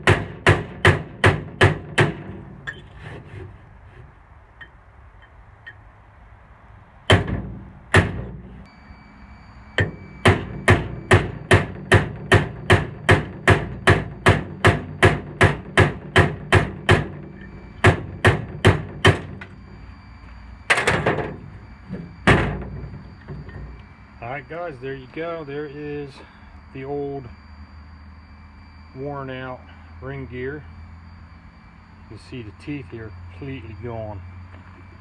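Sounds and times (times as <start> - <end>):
hammer striking steel punch: 0.0 - 2.8, 7.1 - 8.5, 9.8 - 19.5, 20.7 - 23.8.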